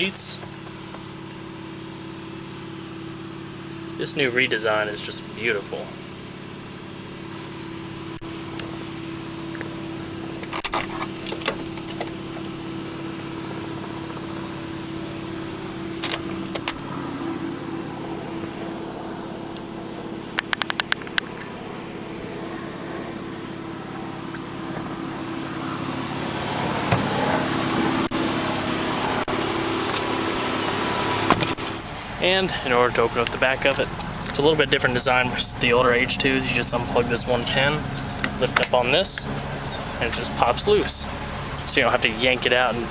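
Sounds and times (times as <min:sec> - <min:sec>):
handling noise: 0:10.4 - 0:12.6, 0:15.9 - 0:21.6
scattered clicks: 0:20.4 - 0:21.5.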